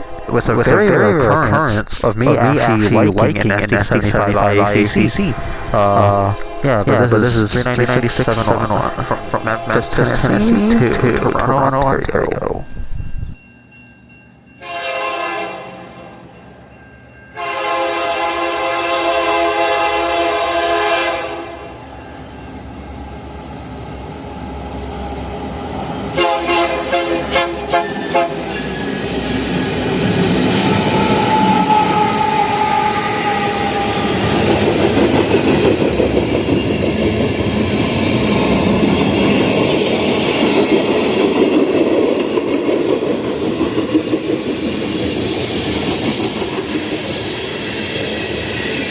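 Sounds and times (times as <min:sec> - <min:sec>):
freight train rumble and clickety-clack: 0:00.0 - 0:13.4, 0:23.6 - 0:48.9
locomotive horn blasts: 0:14.6 - 0:16.1, 0:17.4 - 0:21.8, 0:26.1 - 0:28.6, 0:30.6 - 0:34.2.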